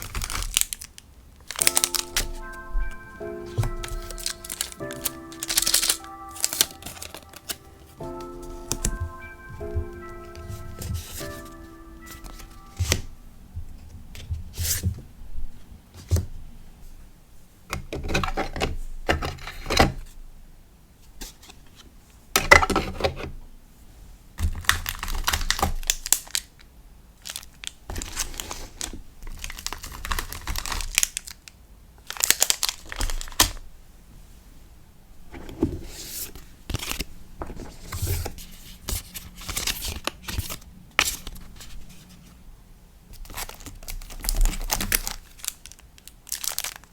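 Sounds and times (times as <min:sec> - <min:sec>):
paper and plastic crinkling: 0:00.0 - 0:13.1, 0:24.4 - 0:26.6, 0:27.2 - 0:33.6, 0:35.4 - 0:42.3, 0:43.1 - 0:46.9.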